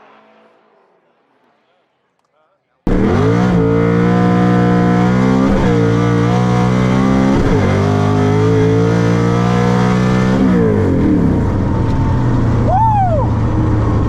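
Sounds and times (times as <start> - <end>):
car engine accelerating hard: 2.9 - 14.0.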